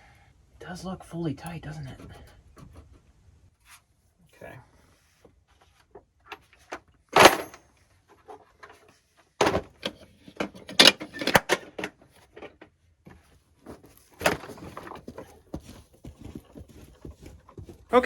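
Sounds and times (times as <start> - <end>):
knocks and clunks of handling: 1.8 - 3.1, 5.2 - 17.9.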